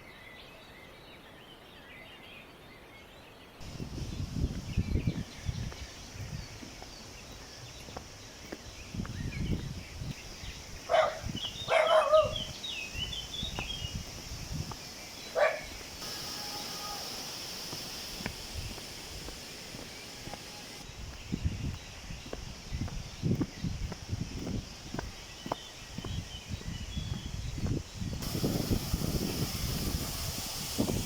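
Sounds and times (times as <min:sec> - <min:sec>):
bird chirps: 0:03.6 - 0:28.5
dog barking: 0:10.9 - 0:12.4, 0:15.4 - 0:15.7
footsteps: 0:13.5 - 0:28.3.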